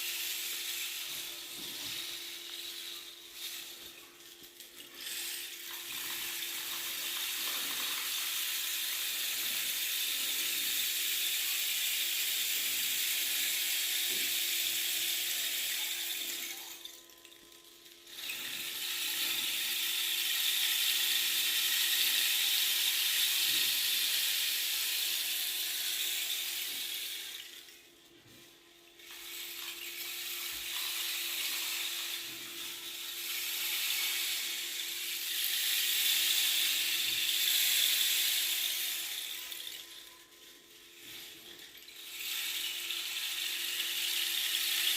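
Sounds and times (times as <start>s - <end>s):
rain stick rattling hiss: 29.0s - 44.9s.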